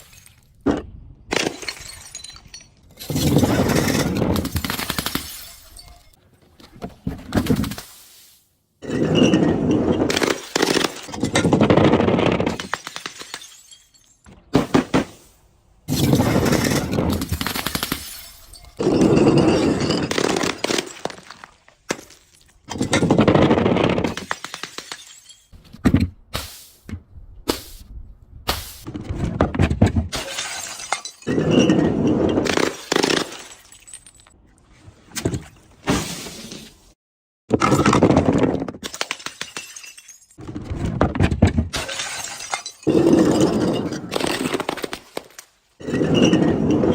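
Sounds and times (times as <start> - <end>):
objects crushed and breaking: 0.0 - 6.2, 8.8 - 26.1, 29.2 - 34.4, 37.5 - 46.9
glass shattering: 1.3 - 6.2, 12.5 - 15.3, 15.9 - 23.1, 24.0 - 25.6, 30.1 - 34.4, 38.8 - 40.4, 41.7 - 46.9.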